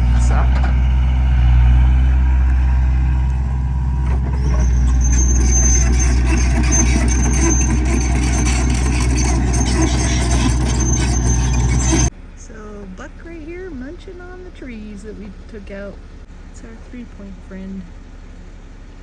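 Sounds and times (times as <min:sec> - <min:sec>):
heavy machine engine running: 0:00.0 - 0:12.1
high metallic squeal: 0:04.1 - 0:12.1.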